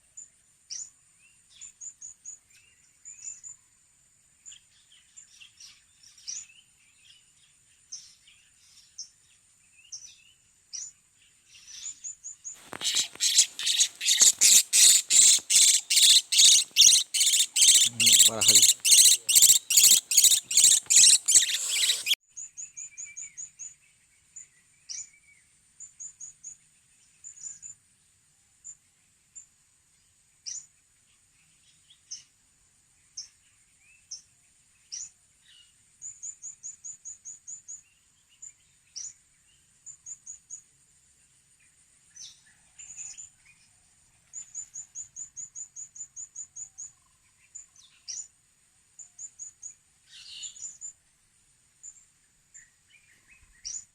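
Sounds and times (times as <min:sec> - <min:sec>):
parrots chirping: 0:12.6 - 0:22.2.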